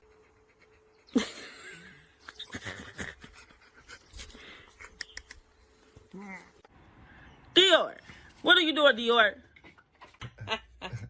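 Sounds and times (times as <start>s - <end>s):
dog panting: 0.0s - 1.4s, 3.1s - 5.0s.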